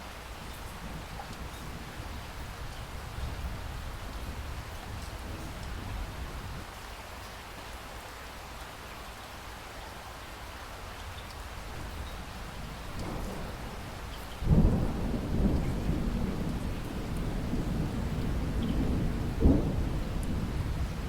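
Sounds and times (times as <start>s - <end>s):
steady rain falling: 0.0s - 21.0s
thunder clap: 12.9s - 21.0s.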